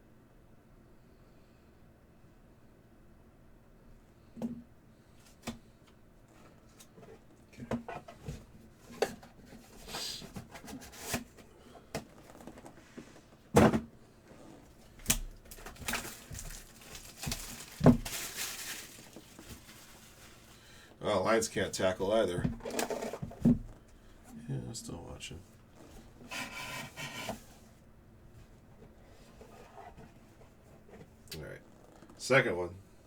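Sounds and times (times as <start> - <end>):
packaging rustling: 15.4 - 20.7.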